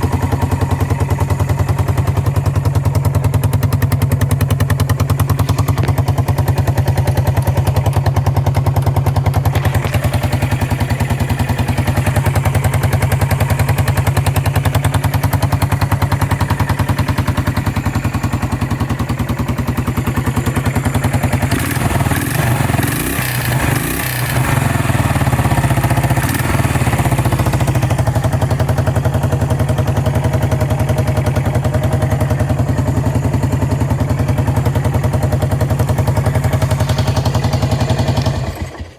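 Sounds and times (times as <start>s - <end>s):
engine clatter: 0.0s - 38.9s
motorcycle engine idling: 0.0s - 38.9s.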